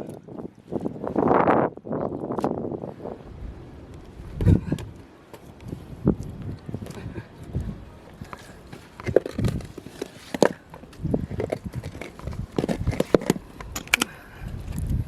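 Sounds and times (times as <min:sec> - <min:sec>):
stones knocking against stones: 0:08.3 - 0:14.1.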